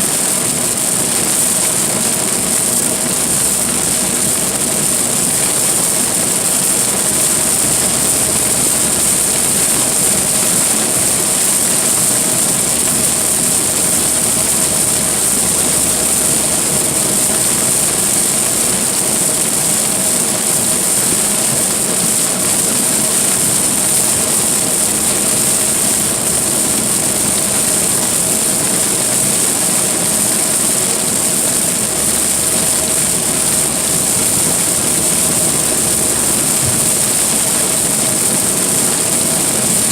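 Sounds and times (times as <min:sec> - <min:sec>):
rain hissing on car: 0:00.0 - 0:39.9
tyre and engine noise: 0:21.9 - 0:39.9.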